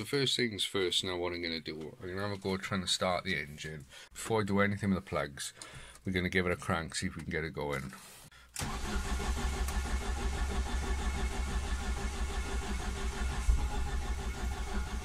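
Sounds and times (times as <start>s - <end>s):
engine cranking on starter motor: 8.6s - 15.0s.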